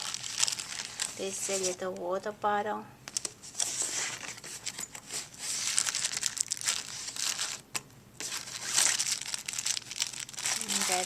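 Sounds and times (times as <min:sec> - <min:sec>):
soft bag crinkling and rustling: 0:00.0 - 0:02.0, 0:03.1 - 0:07.6, 0:08.2 - 0:11.0.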